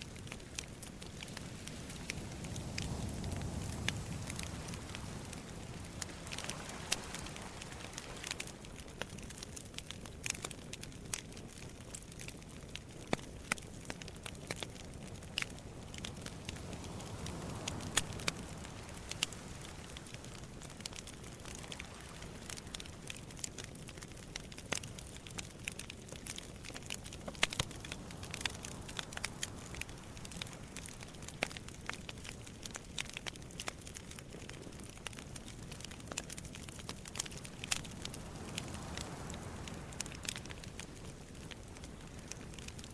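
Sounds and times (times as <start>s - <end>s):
campfire crackling and popping: 0.0s - 42.9s
sea waves rushing: 1.0s - 8.9s, 15.5s - 23.2s, 37.4s - 42.3s.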